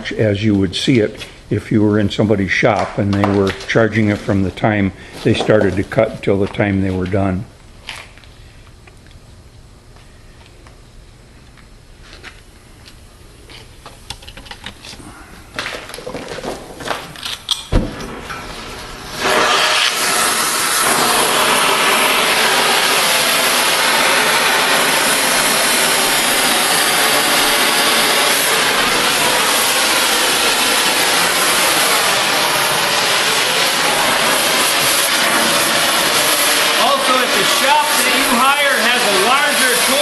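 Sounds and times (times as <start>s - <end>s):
cutting torch hissing: 17.7s - 40.0s.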